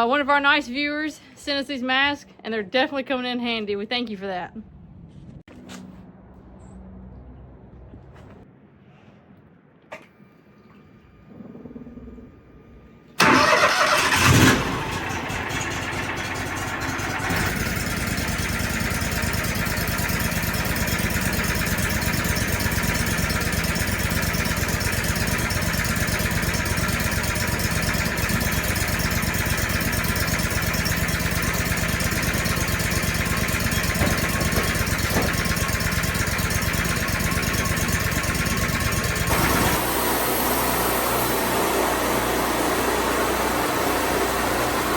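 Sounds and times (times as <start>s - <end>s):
sawmill engine cranking and running: 13.2s - 44.9s.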